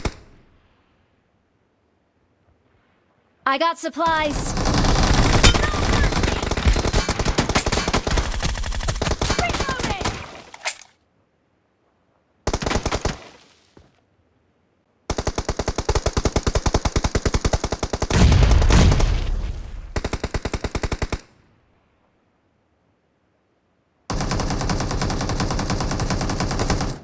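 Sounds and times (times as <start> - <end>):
automatic gunfire: 4.5 - 10.4.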